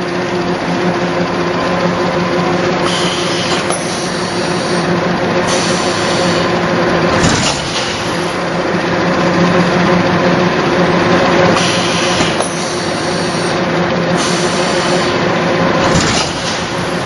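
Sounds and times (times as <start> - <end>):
factory machinery humming: 0.0 - 17.0.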